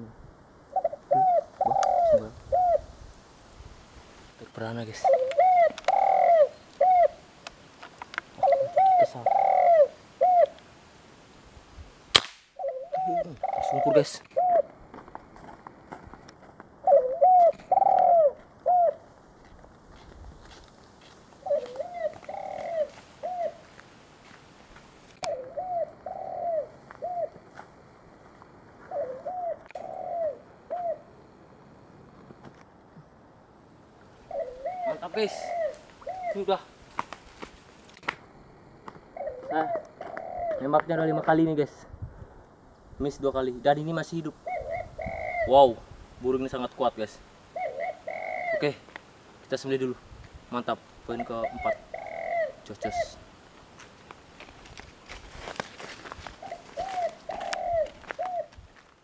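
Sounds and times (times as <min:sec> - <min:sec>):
dove cooing: 0:00.7 - 0:03.0, 0:04.6 - 0:07.3, 0:08.3 - 0:10.6, 0:12.6 - 0:14.8, 0:16.8 - 0:19.2, 0:21.4 - 0:23.8, 0:25.2 - 0:27.4, 0:28.8 - 0:31.2, 0:34.2 - 0:36.7, 0:39.0 - 0:41.5, 0:44.3 - 0:45.8, 0:47.4 - 0:48.9, 0:51.1 - 0:53.3, 0:56.3 - 0:58.6.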